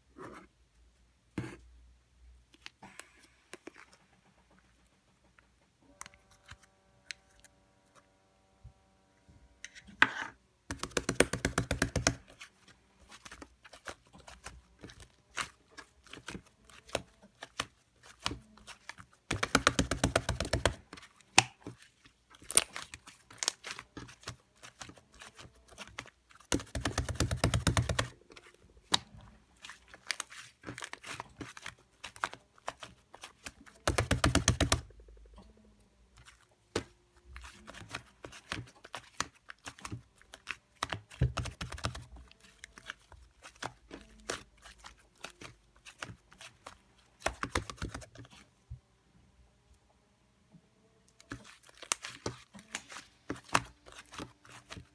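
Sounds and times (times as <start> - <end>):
soft sticky slime noises: 10.7 - 48.9, 51.0 - 54.9
slime crackling and popping: 22.4 - 24.1.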